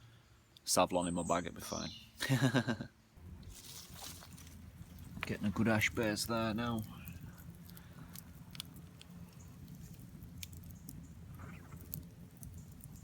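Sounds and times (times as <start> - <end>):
campfire crackling: 2.2 - 13.0
sharp pops from fire: 3.2 - 13.0.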